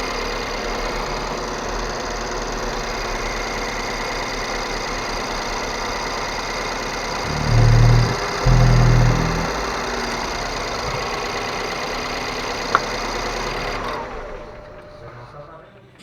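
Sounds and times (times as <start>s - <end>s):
car engine idling: 7.2s - 13.4s
loud low booms: 7.3s - 10.5s.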